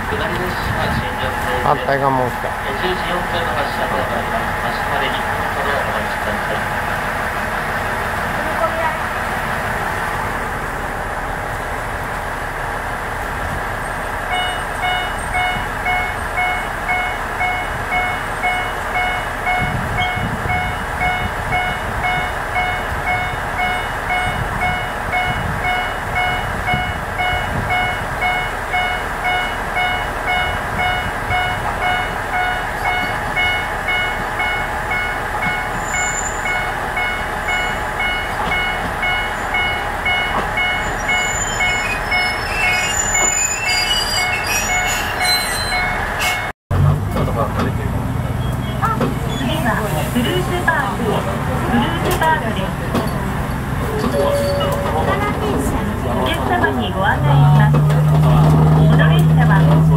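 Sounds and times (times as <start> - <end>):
diesel railcar engine rumbling: 0.0 - 59.9
railroad crossing bell ringing: 14.3 - 46.5, 51.7 - 57.7.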